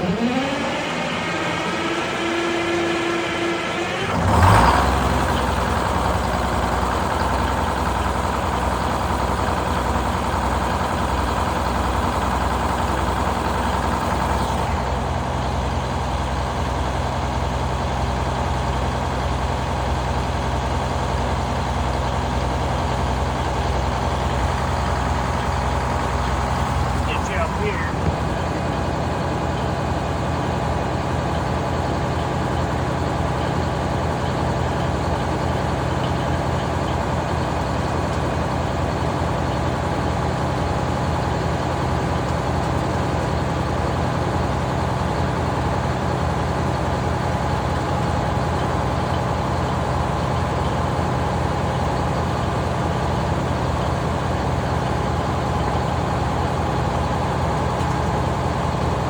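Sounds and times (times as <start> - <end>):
large engine running steadily: 0.0 - 59.0.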